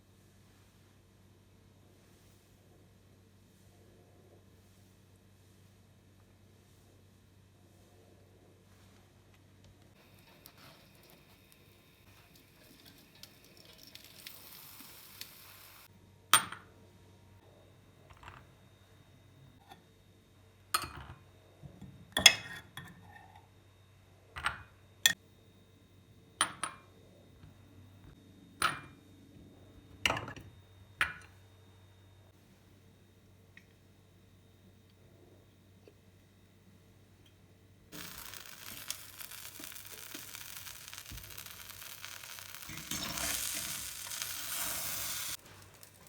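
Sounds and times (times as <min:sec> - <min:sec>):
soft hiss: 0:09.9 - 0:15.9, 0:37.9 - 0:46.0.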